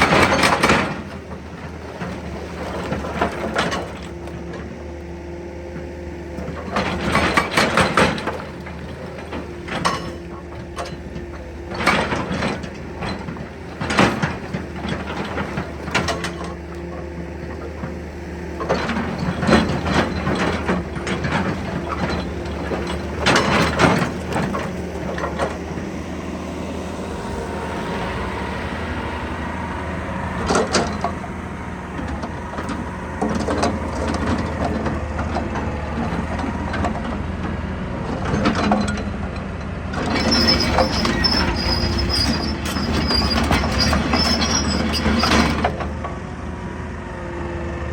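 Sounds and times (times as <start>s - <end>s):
excavator diesel engine running: 0.0s - 47.9s
metallic clanking and scraping: 6.3s - 26.2s, 30.2s - 46.2s.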